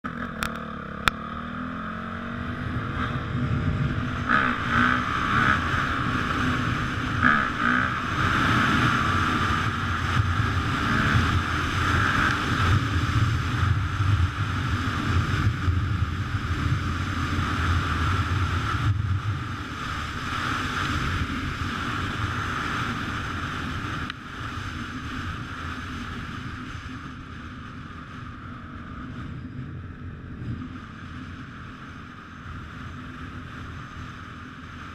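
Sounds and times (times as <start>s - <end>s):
dirt bike engine revving: 0.0s - 13.3s.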